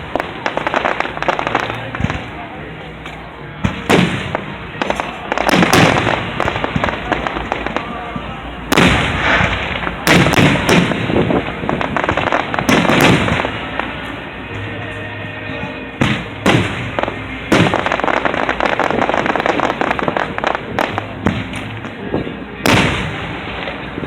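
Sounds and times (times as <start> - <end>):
fireworks booming: 0.0 - 24.0
fireworks crackling: 0.0 - 24.0.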